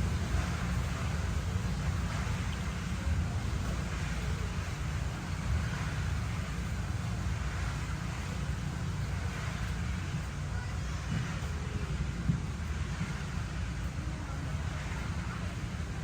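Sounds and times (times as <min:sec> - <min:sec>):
faint hiss: 0:00.0 - 0:16.0
steady low rumble: 0:00.0 - 0:16.0.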